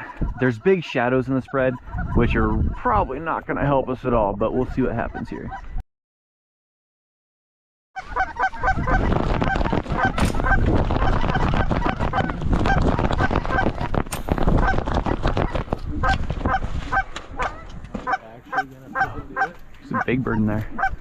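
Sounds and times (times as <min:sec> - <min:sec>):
geese honking: 0:00.0 - 0:03.8, 0:04.4 - 0:05.8, 0:08.0 - 0:21.0
wind rumble on microphone: 0:01.8 - 0:05.8, 0:08.1 - 0:18.0, 0:19.0 - 0:21.0.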